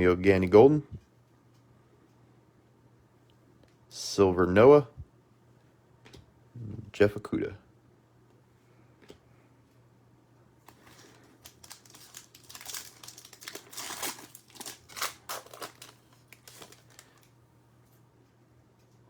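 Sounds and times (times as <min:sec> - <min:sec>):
plastic wrapper crinkling and tearing: 0:10.6 - 0:17.3.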